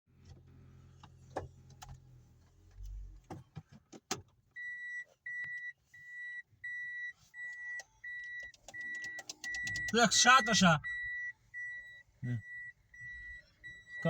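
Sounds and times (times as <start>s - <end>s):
car warning chime beeping: 4.5s - 14.0s.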